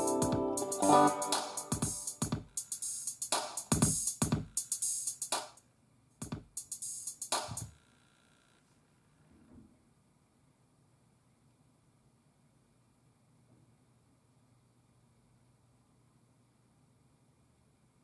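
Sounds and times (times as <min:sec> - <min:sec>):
drum machine beat: 0:00.0 - 0:05.6, 0:06.2 - 0:07.7.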